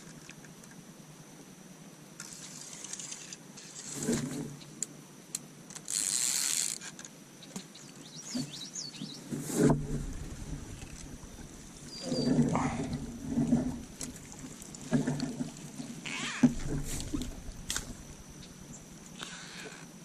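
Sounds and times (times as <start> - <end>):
fishing reel ratcheting and whirring: 5.7 - 7.0
bird chirps: 11.6 - 12.8.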